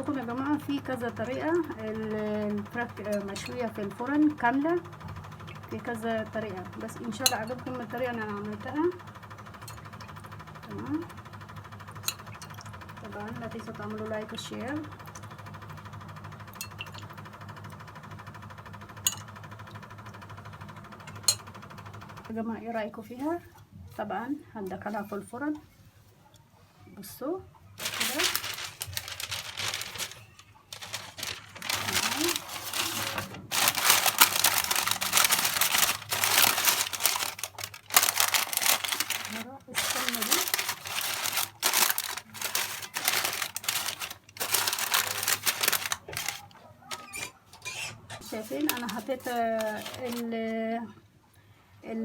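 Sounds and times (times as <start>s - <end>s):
rapid mechanical buzzing hum: 0.0s - 25.9s, 27.5s - 51.8s
paper and foil crinkling: 27.8s - 47.6s, 48.2s - 50.5s.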